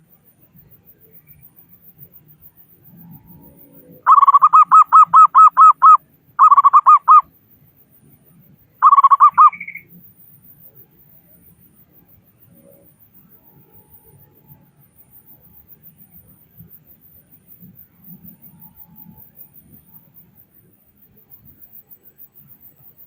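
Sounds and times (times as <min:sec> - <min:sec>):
dove cooing: 0:04.1 - 0:07.2, 0:08.8 - 0:09.7.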